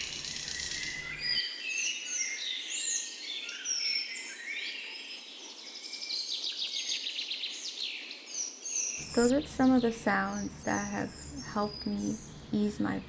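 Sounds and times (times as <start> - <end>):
faint outdoor hiss: 0.0 - 13.0
songbirds singing and chirping: 0.0 - 13.0.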